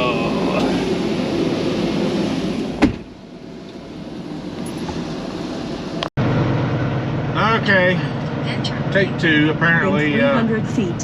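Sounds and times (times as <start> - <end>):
truck engine running: 0.0 - 11.0
sharp bang of door shutting: 2.8 - 3.1.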